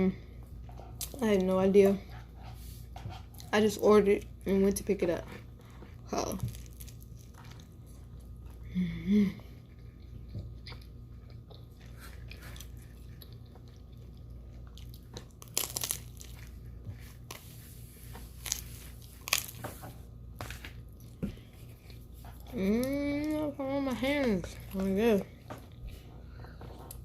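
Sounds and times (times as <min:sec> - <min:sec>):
person chewing food: 0:05.2 - 0:27.0
person humming: 0:08.7 - 0:09.5
crust crunching: 0:15.0 - 0:21.1.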